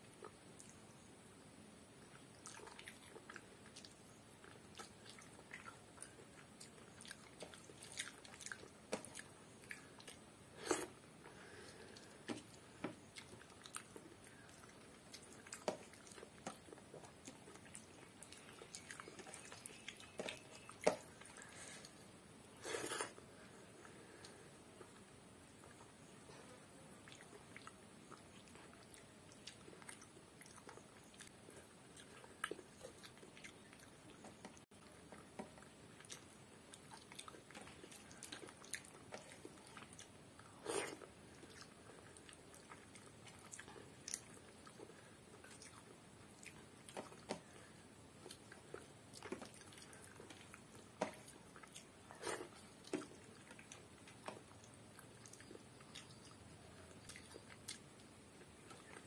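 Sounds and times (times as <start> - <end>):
person chewing with wet mouth sounds: 0.0 - 1.1, 2.0 - 59.0.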